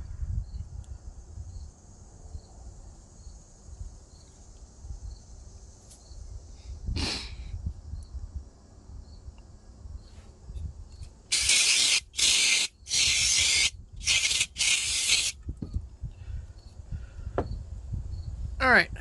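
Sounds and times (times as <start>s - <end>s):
aerosol spray can hissing: 11.3s - 15.4s.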